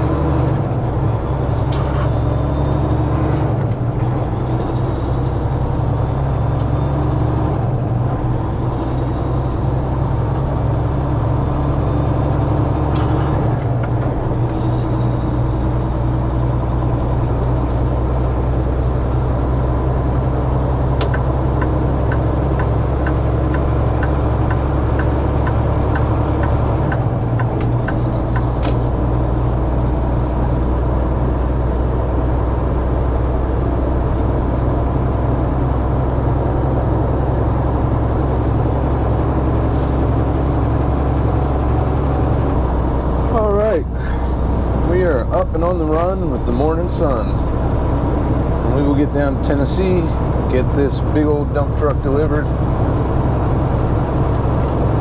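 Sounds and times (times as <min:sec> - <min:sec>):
truck diesel engine shifting gears: 0:00.0 - 0:55.0
turn signal ticking: 0:20.9 - 0:29.1.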